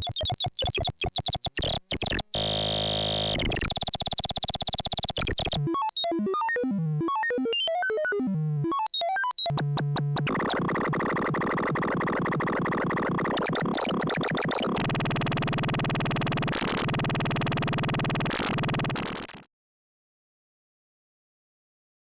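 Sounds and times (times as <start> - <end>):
analog synthesizer tones: 1.6 - 19.4.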